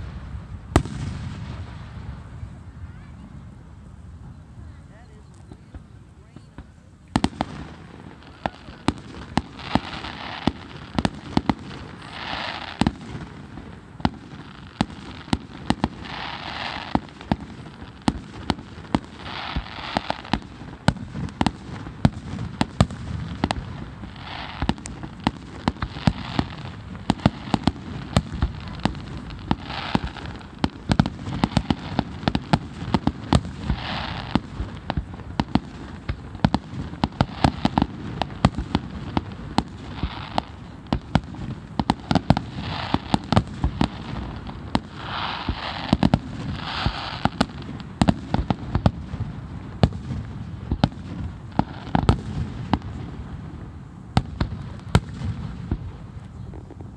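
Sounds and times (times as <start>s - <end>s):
fireworks bangs and pops: 0.0s - 3.6s, 5.0s - 56.9s
firework hiss: 6.4s - 56.9s.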